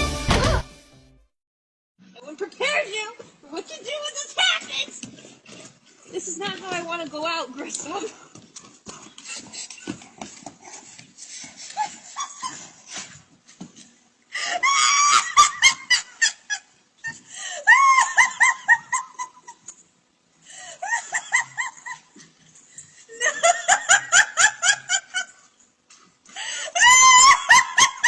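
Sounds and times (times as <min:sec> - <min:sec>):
high-pitched laughter: 0:14.6 - 0:16.6, 0:17.6 - 0:19.6, 0:26.8 - 0:28.0.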